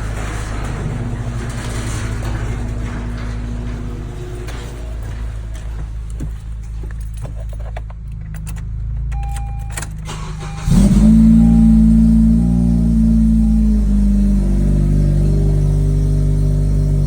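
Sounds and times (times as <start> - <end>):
steady low hum: 0.0 - 8.1
keys rattling and clicking: 0.0 - 16.6
car engine cranking and idling: 0.0 - 17.0.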